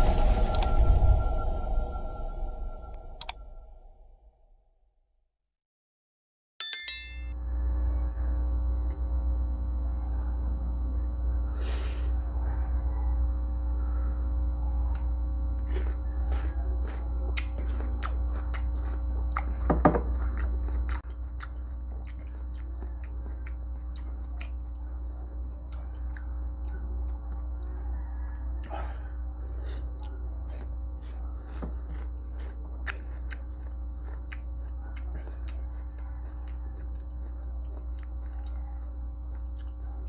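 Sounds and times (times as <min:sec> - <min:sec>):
steady low hum: 0:00.0 - 0:04.0, 0:06.9 - 0:40.0
wet crunchy fruit chewing: 0:14.9 - 0:40.0.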